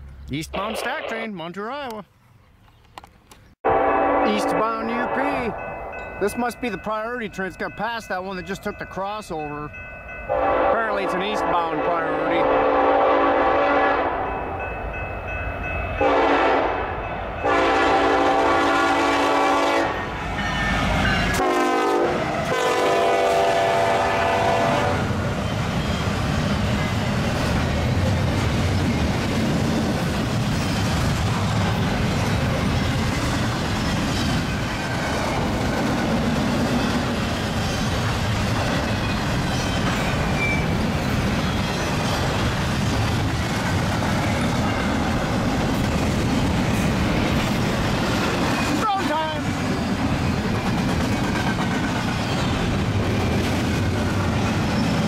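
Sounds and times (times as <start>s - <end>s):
freight train rumble and wheel clatter: 3.0s - 55.0s
locomotive air horn blasts: 3.6s - 5.2s, 10.3s - 14.3s, 16.0s - 25.1s.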